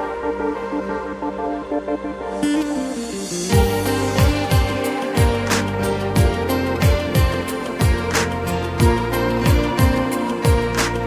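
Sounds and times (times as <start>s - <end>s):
electronic synth melody: 0.0s - 11.0s.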